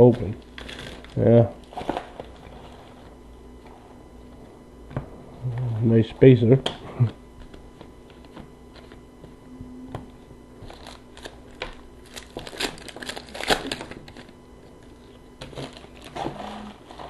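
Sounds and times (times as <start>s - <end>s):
wrapper crinkling: 10.6s - 17.0s.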